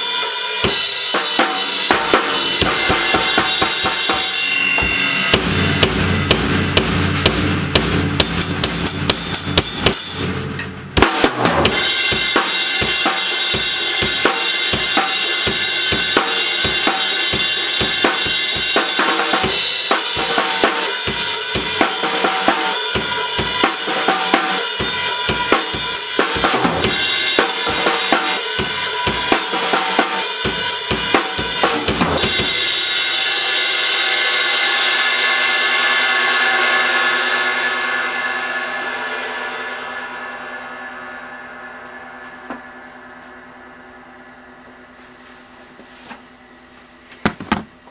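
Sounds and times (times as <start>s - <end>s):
cymbal wash: 0.0s - 47.0s
drum hits: 0.6s - 32.9s.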